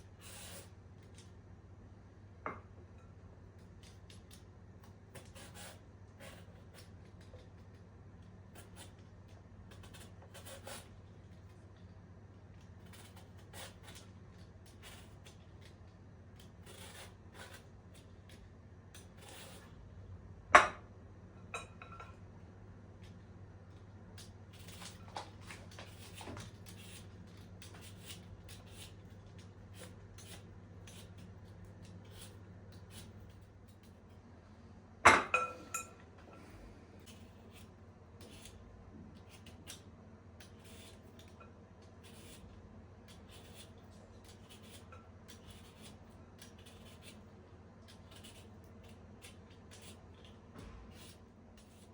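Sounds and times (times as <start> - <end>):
low steady hum: 0.0 - 51.9
rustles and light scrapes: 24.5 - 34.0.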